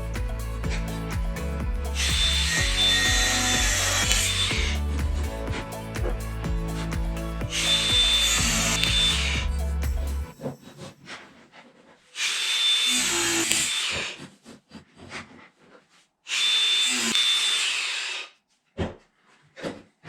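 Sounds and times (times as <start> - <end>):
handheld power tool running: 2.0 - 10.0.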